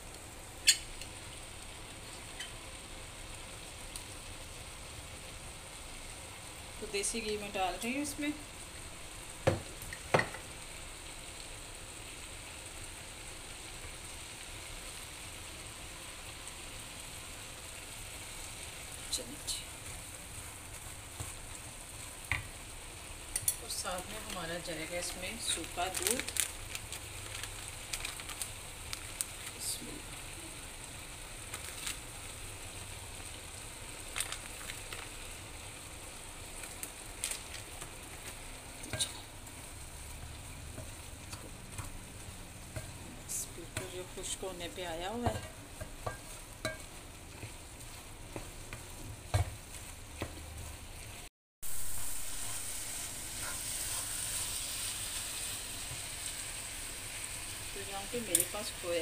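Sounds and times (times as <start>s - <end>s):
carrots sizzling in a pan: 0.0s - 59.0s
wooden spatula stirring: 38.2s - 51.2s.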